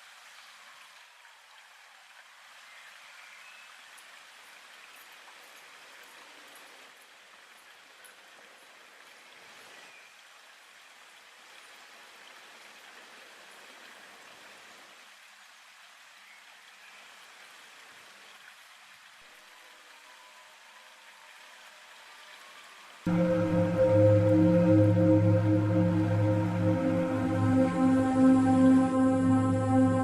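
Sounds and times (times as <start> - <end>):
faint rushing noise: 23.1 - 30.0.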